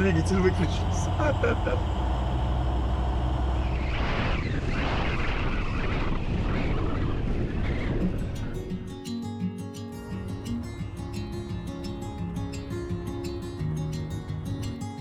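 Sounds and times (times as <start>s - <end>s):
low steady hum: 0.0s - 4.5s
wind rushing past plane: 0.0s - 8.5s.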